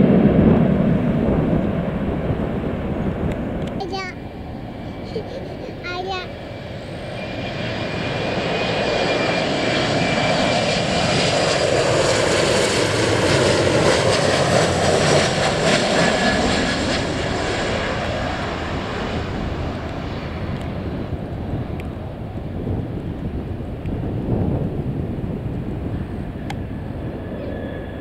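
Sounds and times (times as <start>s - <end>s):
airliner passing overhead: 0.0s - 28.0s.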